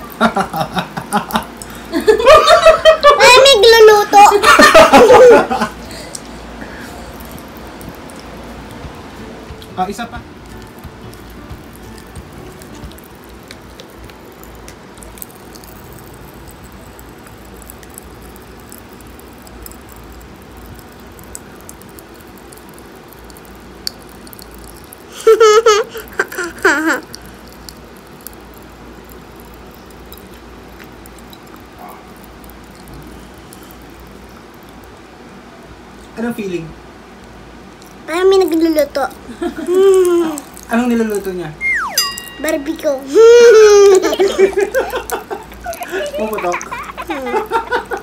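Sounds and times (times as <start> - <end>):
popping candy crackling: 0.0 - 35.1, 37.8 - 48.0.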